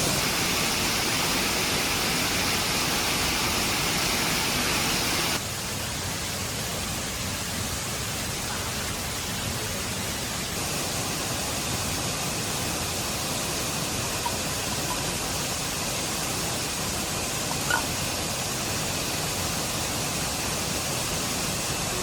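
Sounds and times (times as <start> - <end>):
steady rushing hiss: 0.0 - 22.0.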